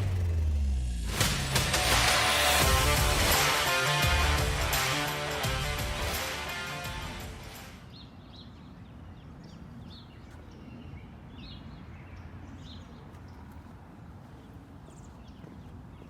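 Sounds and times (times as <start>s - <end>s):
low background rumble: 0.0s - 2.1s.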